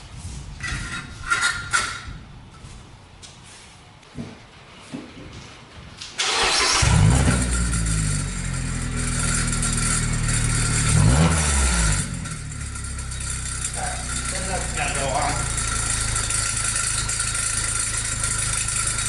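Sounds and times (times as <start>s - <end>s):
car engine starting and idling: 6.2s - 19.0s.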